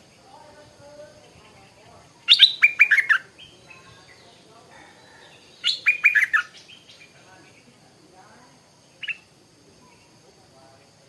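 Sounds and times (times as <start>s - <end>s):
bulbul whistled song: 2.2s - 3.6s, 5.6s - 6.9s.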